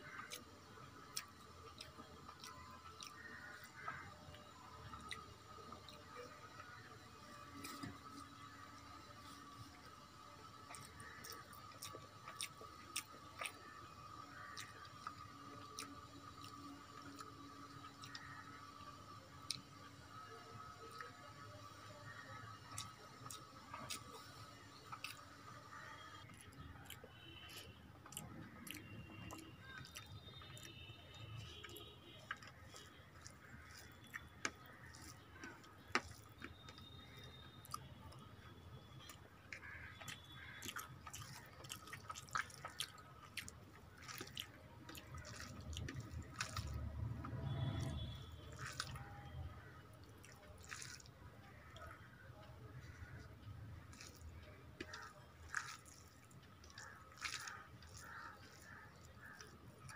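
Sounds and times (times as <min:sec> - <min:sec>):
wet chewing with mouth clicks: 0:00.0 - 0:59.9
fingers squishing rice on a plate: 0:31.5 - 0:38.2, 0:39.0 - 0:59.9.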